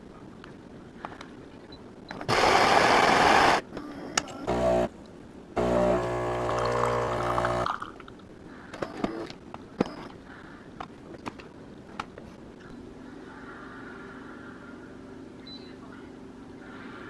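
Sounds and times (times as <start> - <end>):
espresso machine pump buzzing: 2.3 - 3.6, 4.5 - 4.9, 5.6 - 7.8
liquid dribbling into cup: 6.4 - 8.1.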